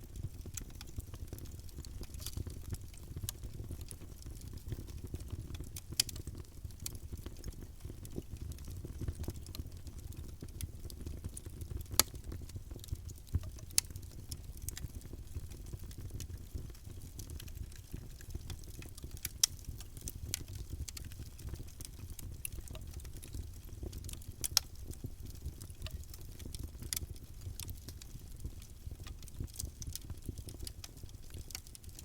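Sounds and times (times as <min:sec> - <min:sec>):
wood crackling and popping: 0:00.0 - 0:32.0.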